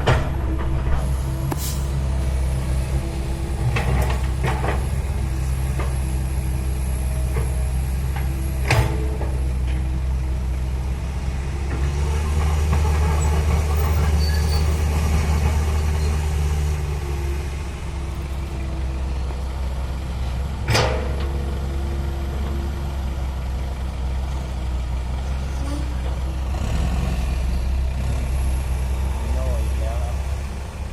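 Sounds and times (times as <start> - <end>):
heavy diesel machinery running: 0.0 - 30.9.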